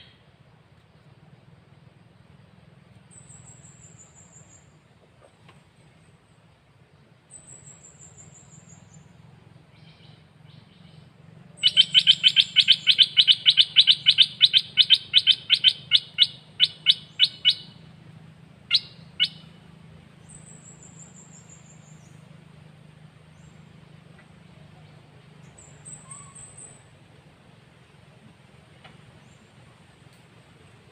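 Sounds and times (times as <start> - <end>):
faint low hum: 0.0 - 30.9
songbird singing: 0.0 - 30.9.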